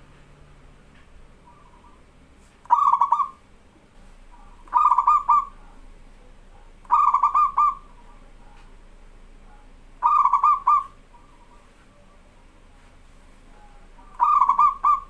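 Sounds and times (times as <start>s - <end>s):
dove cooing: 1.4s - 3.4s, 4.3s - 5.8s, 6.8s - 8.3s, 10.0s - 12.1s, 14.0s - 15.0s.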